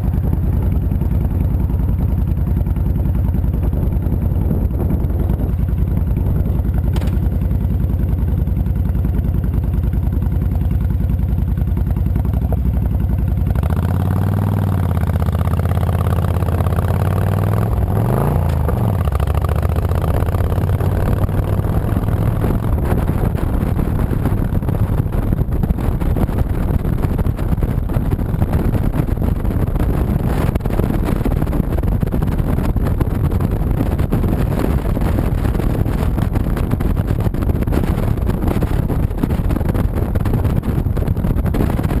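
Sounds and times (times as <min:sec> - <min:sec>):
motorcycle engine revving: 0:00.0 - 0:42.0
wind and road noise: 0:00.0 - 0:42.0.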